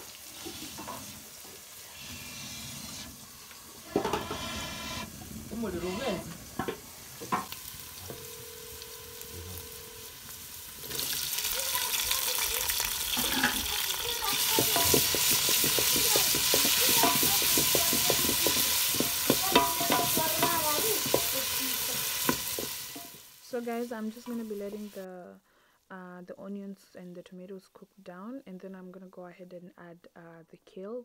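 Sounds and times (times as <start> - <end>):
onions and tomatoes sizzling: 0.0 - 25.1
spoon stirring and knocking pan: 3.9 - 5.1, 5.7 - 8.4, 13.1 - 23.3.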